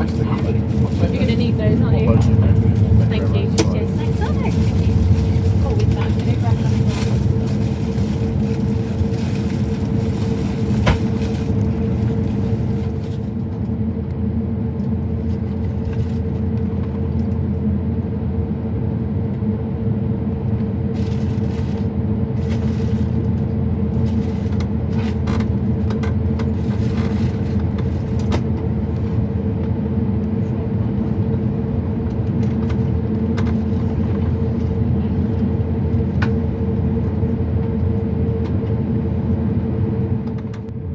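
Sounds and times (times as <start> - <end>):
aircraft cabin rumble and hum: 0.0 - 40.9.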